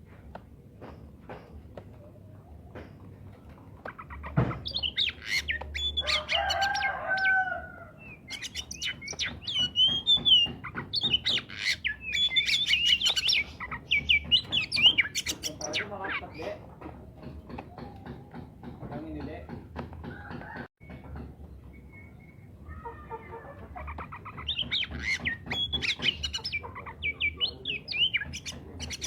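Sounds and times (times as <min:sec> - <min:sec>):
bird singing whistled song: 0:08.0 - 0:16.5, 0:21.6 - 0:22.5, 0:24.5 - 0:29.0.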